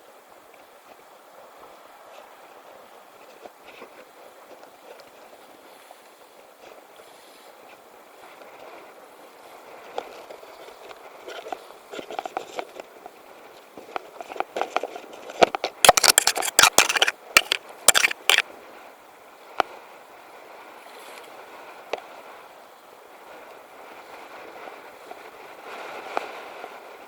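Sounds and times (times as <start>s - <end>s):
water: 0.0s - 27.0s
wind: 0.0s - 27.0s
hard objects clattering: 15.9s - 18.4s.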